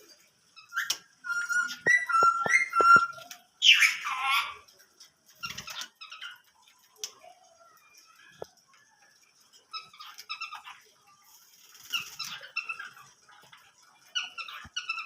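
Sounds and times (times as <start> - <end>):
faint bird chirps: 0.0 - 4.7
bird whistling notes: 0.7 - 4.0.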